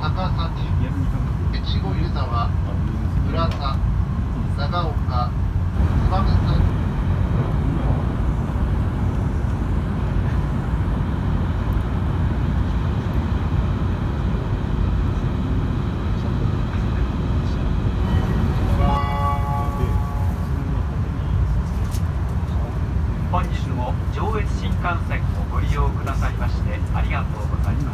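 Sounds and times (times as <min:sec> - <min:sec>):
train rumble inside cabin: 0:00.0 - 0:27.9
short pitched chime: 0:18.0 - 0:20.6.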